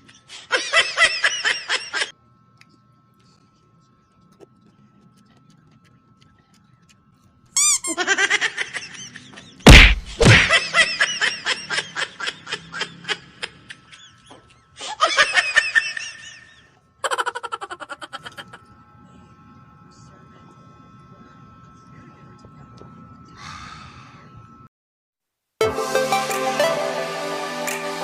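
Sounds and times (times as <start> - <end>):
hearty laughter: 0.0 - 2.1, 7.9 - 9.6, 10.3 - 18.6
loud thump: 9.7 - 10.6.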